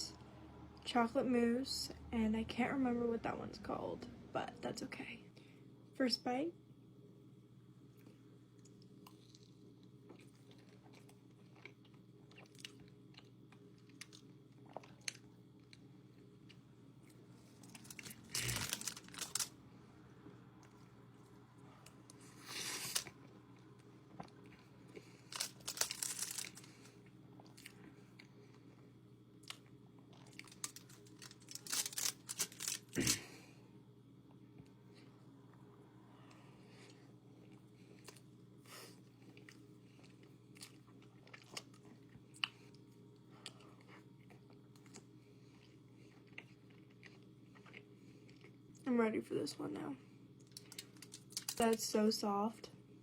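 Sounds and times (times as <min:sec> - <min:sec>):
low steady hum: 0:00.0 - 0:53.0
biting and chewing pastries: 0:07.9 - 0:33.5, 0:36.3 - 0:48.9, 0:50.3 - 0:51.8.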